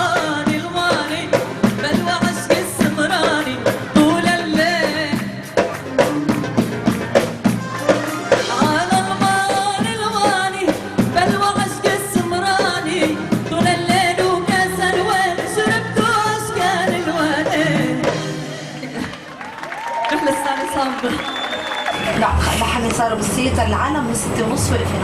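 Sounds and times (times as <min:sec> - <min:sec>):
woman singing with band: 0:00.0 - 0:05.4, 0:08.3 - 0:19.0
busy percussion beat: 0:00.0 - 0:16.2.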